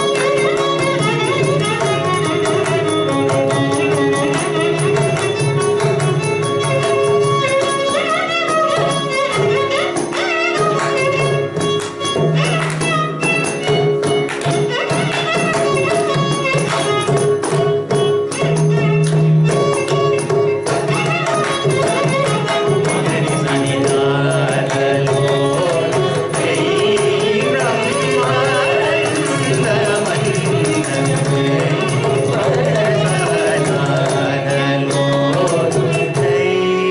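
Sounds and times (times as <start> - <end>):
rapid hand drum strokes: 0.0 - 36.9
violin: 0.0 - 36.9
person singing: 22.0 - 36.9.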